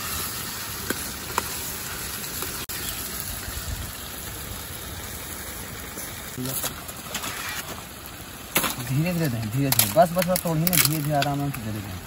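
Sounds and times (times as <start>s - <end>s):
chicken sizzling in a pan: 0.0s - 6.6s.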